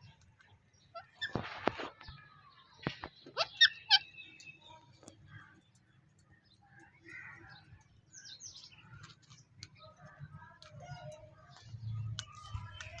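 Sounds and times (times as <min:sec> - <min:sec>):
parrot chirping: 0:03.3 - 0:04.6.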